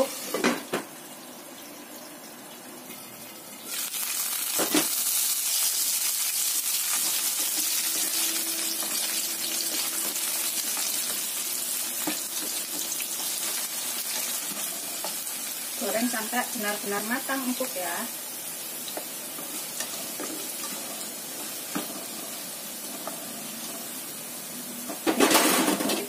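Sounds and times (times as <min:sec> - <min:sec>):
potatoes sizzling in hot oil: 0:00.0 - 0:26.0.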